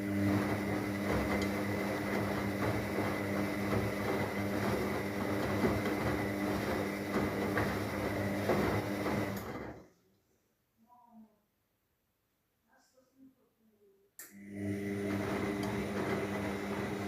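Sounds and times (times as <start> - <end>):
washing machine drum churning: 0.0 - 9.8, 14.7 - 17.0
washing machine motor hum: 0.0 - 9.9, 14.3 - 17.0.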